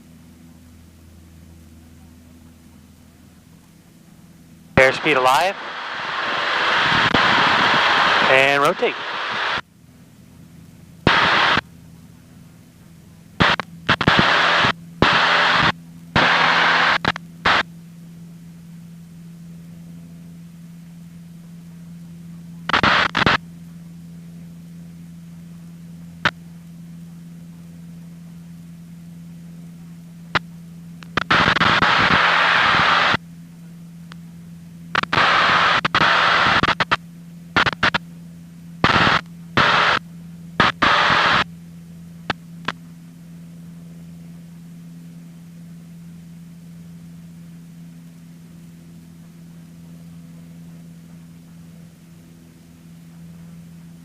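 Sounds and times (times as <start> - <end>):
steady low hum: 0.0 - 54.0
sharp radio clicks: 4.8 - 5.8, 6.9 - 9.6, 11.1 - 11.6, 13.4 - 17.6, 22.7 - 23.4, 30.3 - 33.2, 34.9 - 38.1, 38.8 - 40.0, 40.6 - 41.5
radio static hiss bursts: 4.8 - 9.6, 11.0 - 11.7, 13.4 - 17.7, 22.6 - 23.4, 26.2 - 26.4, 30.3 - 33.2, 34.9 - 38.1, 38.8 - 41.6, 42.2 - 42.8.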